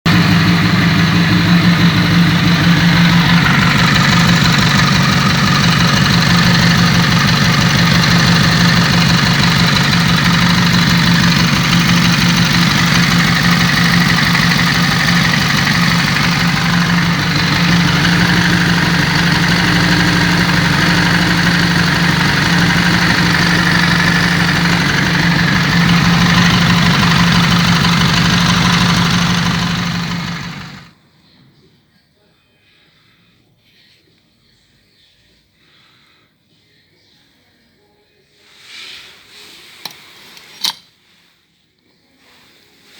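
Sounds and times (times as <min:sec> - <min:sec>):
motorcycle engine idling: 0:00.1 - 0:31.0
clutch rattle: 0:01.3 - 0:30.8.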